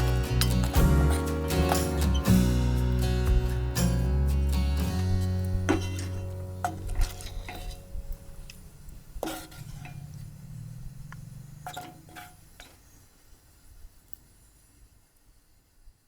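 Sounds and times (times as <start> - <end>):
tableware clinking: 0.0 - 2.6, 5.7 - 7.9
guitar music: 0.0 - 8.6.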